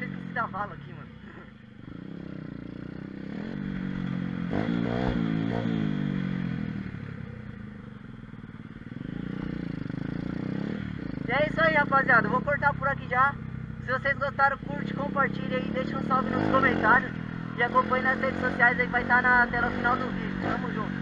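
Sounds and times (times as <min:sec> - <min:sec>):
small motorbike engine revving: 0:01.3 - 0:06.9, 0:08.9 - 0:11.3.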